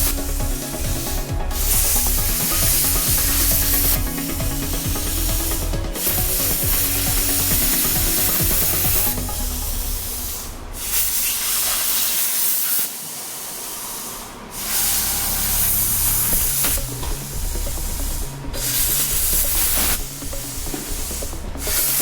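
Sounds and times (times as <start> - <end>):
low background music: 0.0 - 11.1, 16.3 - 22.0
welding equipment hissing: 0.0 - 22.0.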